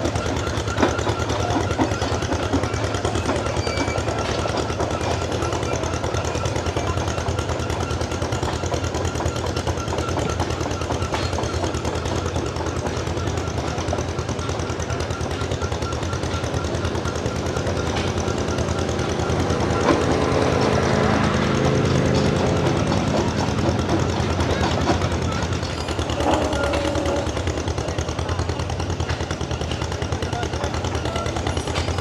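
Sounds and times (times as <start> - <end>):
engine chugging: 0.0 - 32.0.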